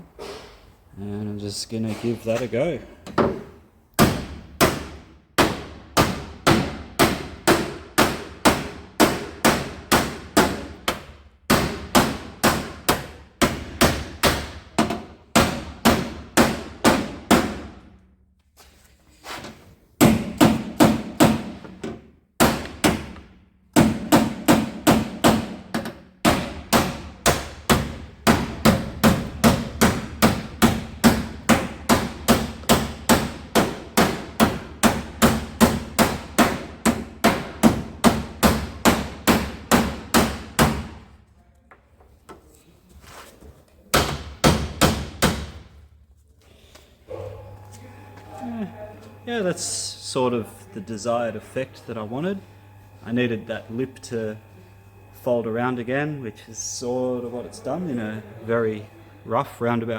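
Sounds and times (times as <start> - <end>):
hammer striking wood block: 3.2 - 17.7, 20.0 - 21.8, 22.4 - 40.9, 43.9 - 45.6.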